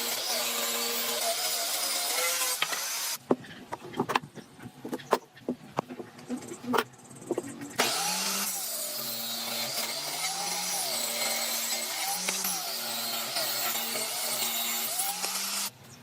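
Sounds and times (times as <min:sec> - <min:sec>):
electric power tool running: 0:00.0 - 0:03.2, 0:07.8 - 0:15.7.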